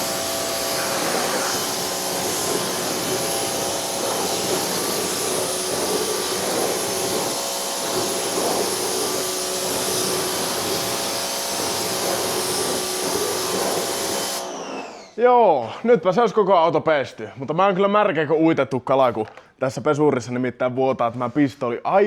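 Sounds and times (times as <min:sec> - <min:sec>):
water jet hissing: 0:00.0 - 0:15.0
pressure washer motor humming: 0:00.0 - 0:15.2.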